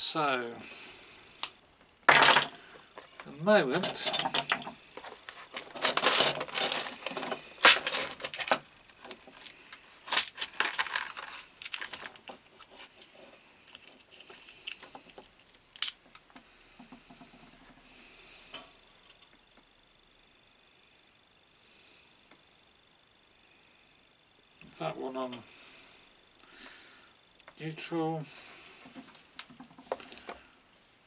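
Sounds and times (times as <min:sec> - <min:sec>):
cable rustling: 0:02.1 - 0:16.2.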